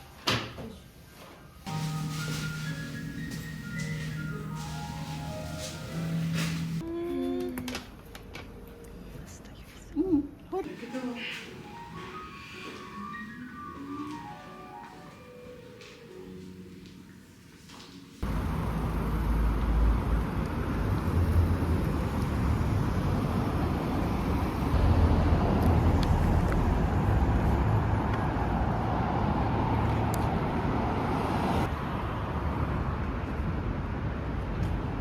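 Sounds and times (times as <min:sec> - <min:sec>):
street traffic rumble: 0:01.7 - 0:06.8, 0:18.2 - 0:35.0.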